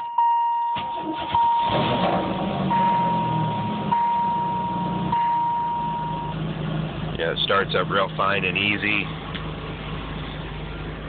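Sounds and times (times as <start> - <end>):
electronic warning chime: 0.0 - 1.7, 2.7 - 6.4
car engine idling: 0.8 - 11.0.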